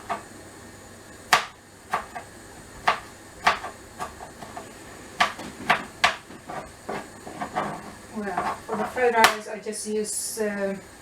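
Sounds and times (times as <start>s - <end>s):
knife chopping on cutting board: 0.0s - 0.3s, 1.3s - 9.4s
faint steady hiss: 0.0s - 11.0s.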